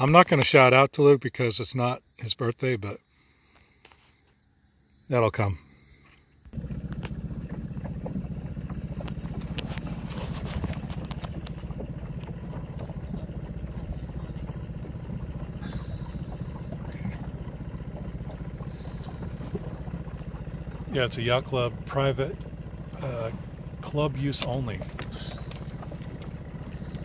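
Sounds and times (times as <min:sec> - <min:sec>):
boat engine running: 0:05.7 - 0:27.0.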